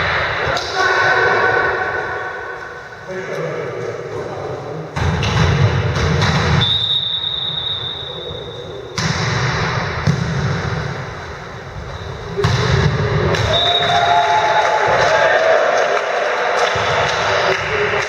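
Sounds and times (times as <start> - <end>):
volleyball being struck: 5.0 - 6.9, 8.9 - 11.0, 12.4 - 13.9.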